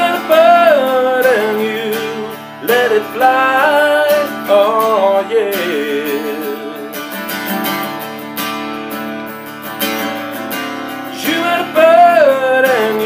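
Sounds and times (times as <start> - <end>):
person singing: 0.0 - 7.1, 11.1 - 13.0
acoustic guitar strumming: 0.0 - 13.0.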